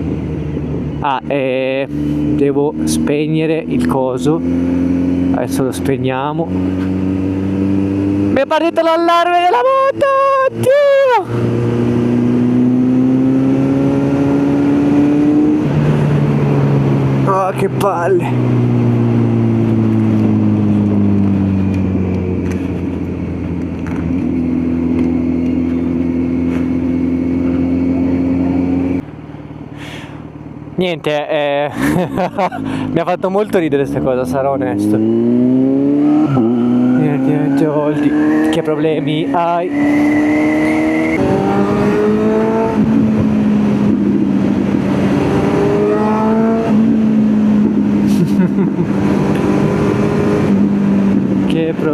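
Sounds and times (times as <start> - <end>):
motorcycle engine revving: 0.0 - 30.7, 31.9 - 51.9
wind noise: 39.7 - 51.9.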